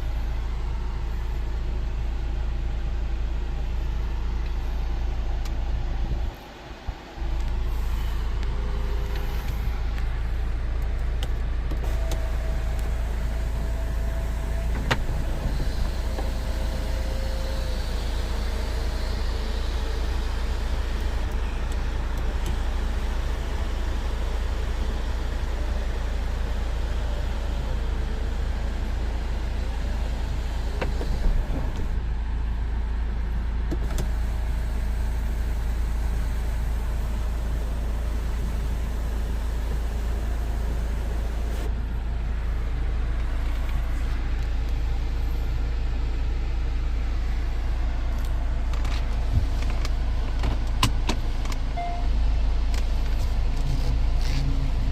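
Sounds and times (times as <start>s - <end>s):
diesel car engine rumbling: 0.0s - 54.9s.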